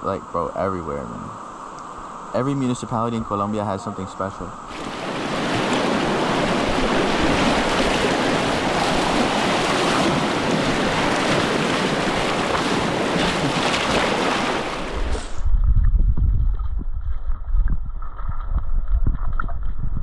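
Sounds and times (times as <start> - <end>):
river water rushing: 4.7 - 15.4.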